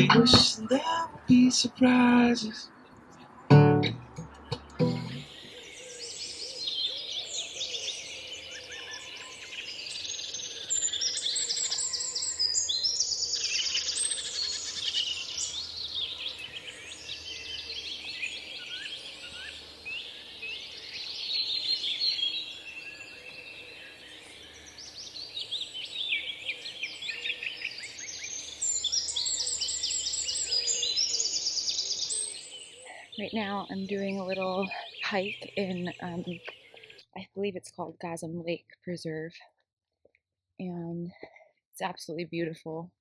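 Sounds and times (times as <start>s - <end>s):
songbirds singing: 0.0s - 37.6s.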